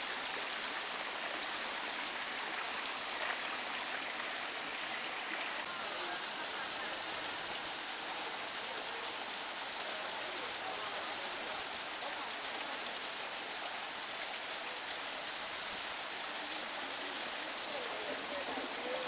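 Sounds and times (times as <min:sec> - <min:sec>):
water rushing: 0:00.0 - 0:19.0
high hiss: 0:04.5 - 0:12.2, 0:13.4 - 0:19.0.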